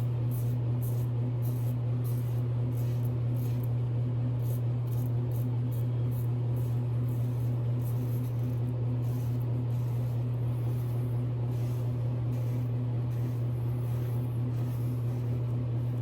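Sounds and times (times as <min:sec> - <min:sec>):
razor scraping stubble: 0:00.0 - 0:03.8, 0:04.4 - 0:16.0
low hum: 0:04.4 - 0:16.0.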